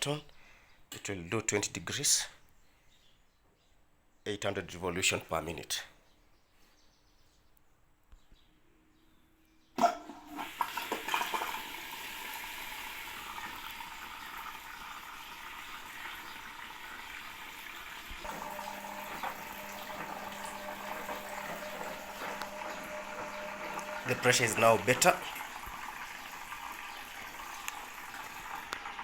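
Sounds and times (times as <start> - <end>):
water rushing into machine: 10.3 - 29.0
washing machine clicks: 18.2 - 25.3.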